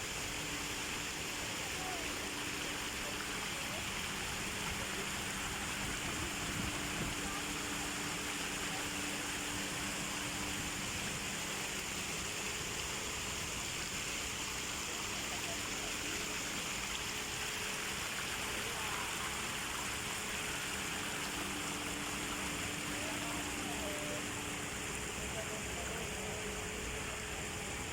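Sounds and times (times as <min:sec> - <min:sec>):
running water rushing: 0:00.0 - 0:27.9.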